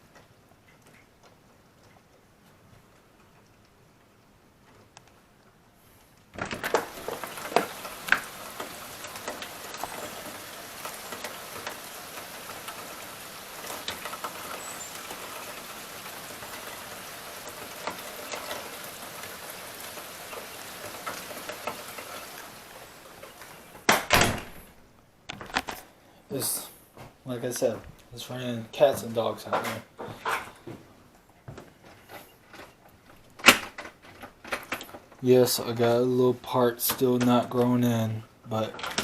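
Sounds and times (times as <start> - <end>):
drips and splashes: 6.4 - 23.9
heavy rain pouring: 6.4 - 24.3, 38.5 - 39.0.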